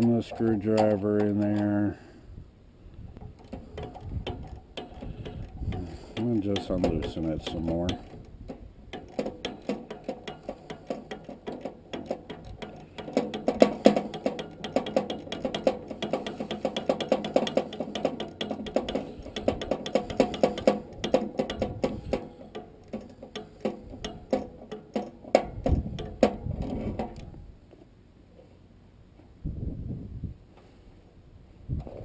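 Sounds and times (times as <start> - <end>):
heavy knocks: 3.5 - 27.2.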